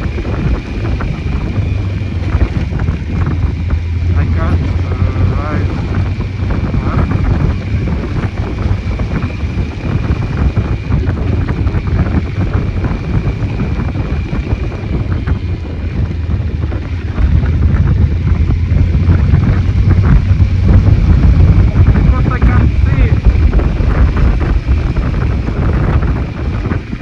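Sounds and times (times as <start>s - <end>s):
motorcycle engine droning: 0.0s - 27.0s
wind buffeting microphone: 0.0s - 27.0s.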